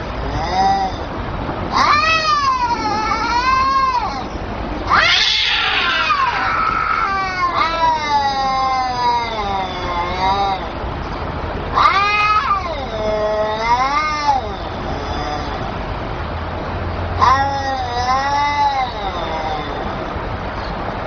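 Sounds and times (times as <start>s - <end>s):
kittens meowing: 1.7s - 10.8s, 11.7s - 15.7s, 17.2s - 20.2s.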